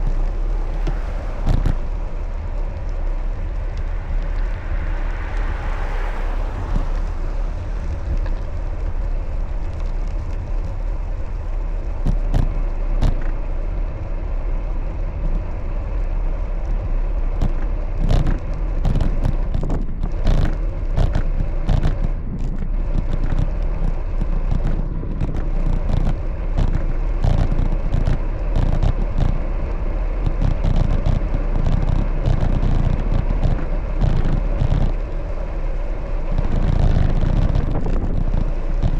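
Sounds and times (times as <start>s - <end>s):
bicycle road noise: 0.0s - 38.9s
sharp clicks and rattles: 0.0s - 38.9s
wind on microphone: 0.0s - 38.9s.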